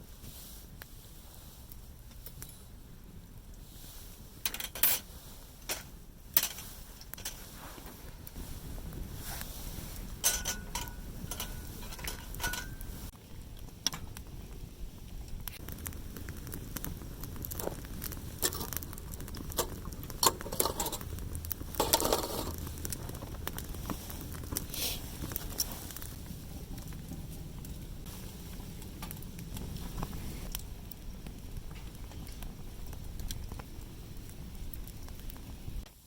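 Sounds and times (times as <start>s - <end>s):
campfire crackling: 0.0s - 36.0s
metal cookware clinking: 10.2s - 12.8s.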